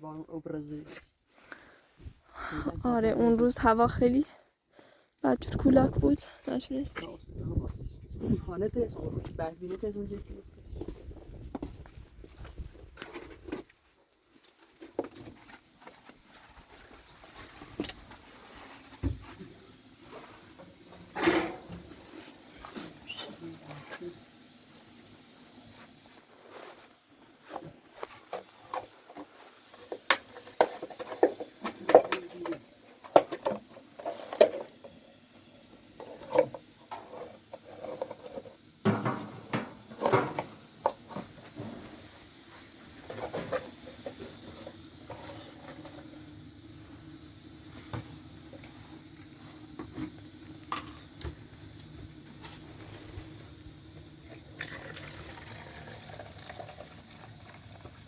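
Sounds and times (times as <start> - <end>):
objects knocking and clattering: 20.5 - 23.0, 27.6 - 35.0, 36.0 - 41.8.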